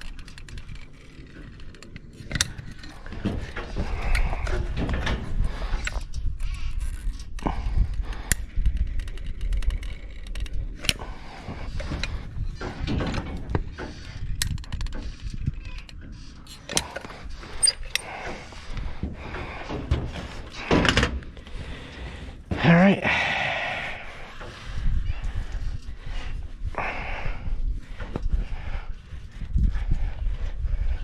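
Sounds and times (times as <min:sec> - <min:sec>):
steady low rumble: 0:00.0 - 0:15.6, 0:16.6 - 0:31.0
hands handling tools and parts: 0:11.8 - 0:21.5.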